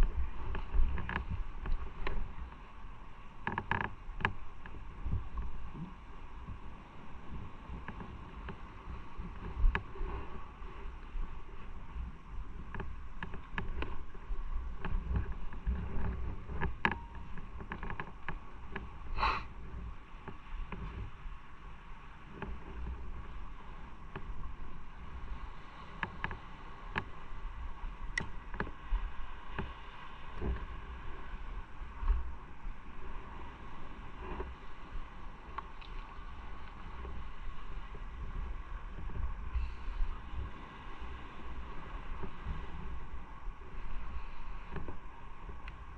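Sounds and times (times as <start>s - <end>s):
wind buffeting microphone: 0.0s - 45.9s
motorcycle engine and road rumble: 7.6s - 21.2s.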